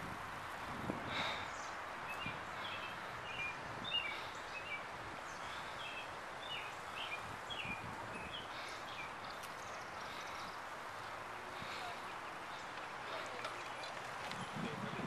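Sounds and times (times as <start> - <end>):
outdoor background hiss: 0.0 - 15.0
birds chirping: 1.1 - 15.0.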